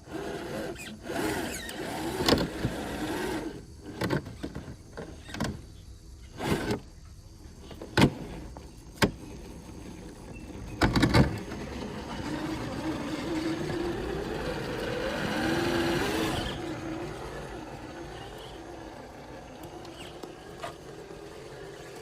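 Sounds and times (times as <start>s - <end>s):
electric motor whining: 0.0s - 4.4s, 10.5s - 22.0s.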